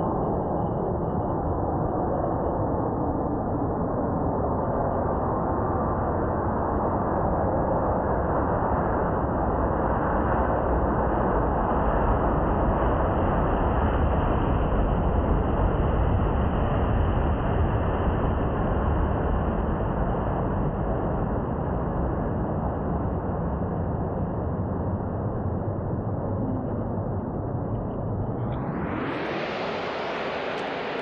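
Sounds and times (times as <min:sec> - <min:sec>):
jet engine roar: 0:23.5 - 0:31.0.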